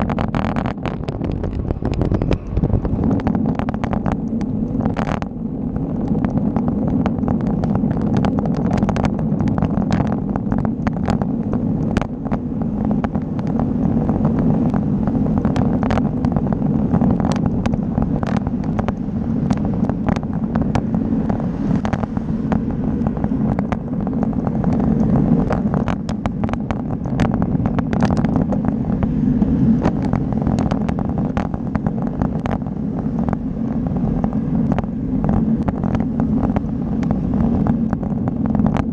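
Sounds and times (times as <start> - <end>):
wind and road noise: 0.0 - 38.9.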